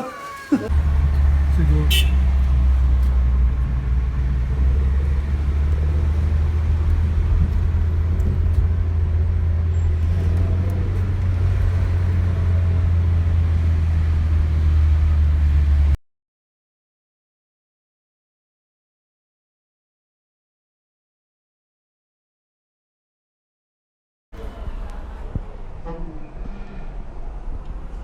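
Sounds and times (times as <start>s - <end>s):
vehicle rumble from inside: 0.0s - 16.0s.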